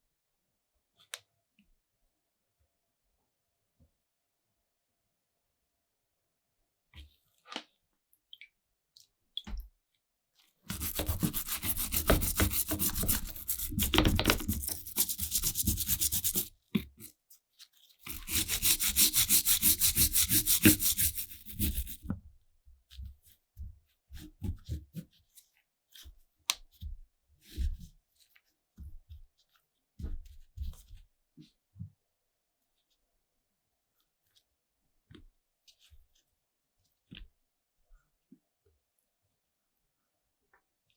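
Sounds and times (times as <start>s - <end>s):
sanding scraping strokes: 10.7s - 16.5s, 18.1s - 22.0s.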